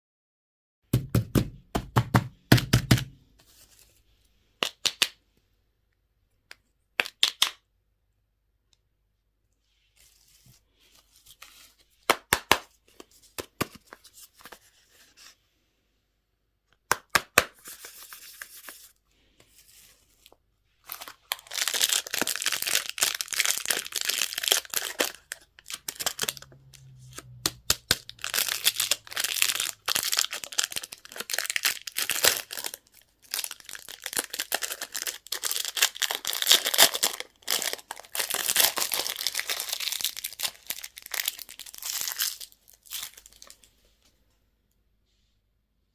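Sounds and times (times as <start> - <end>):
packaging clicks and rustles: 20.8 - 43.7
wrapper tearing and crinkling: 20.8 - 43.7.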